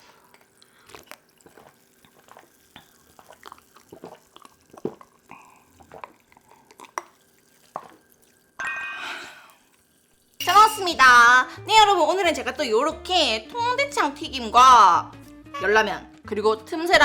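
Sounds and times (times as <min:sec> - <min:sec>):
mouth smacks and slurps: 0:00.0 - 0:08.4.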